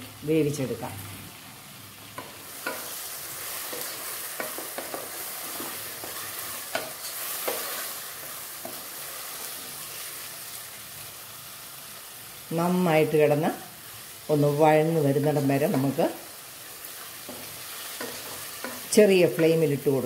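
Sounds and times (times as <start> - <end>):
vegetables sizzling in oil: 0.0 - 20.0
wooden spatula knocking and scraping: 3.6 - 7.8.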